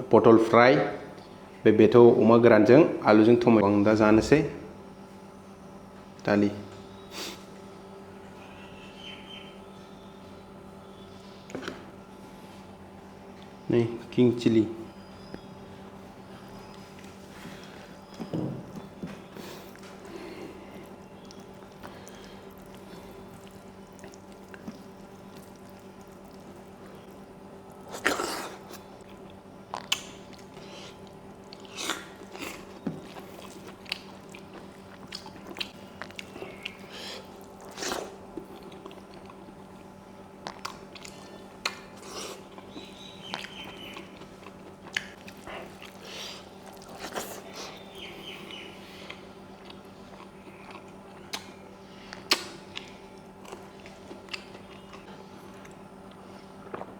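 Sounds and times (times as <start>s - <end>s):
steady low hum: 0.0s - 56.9s
person chewing food: 16.3s - 56.9s.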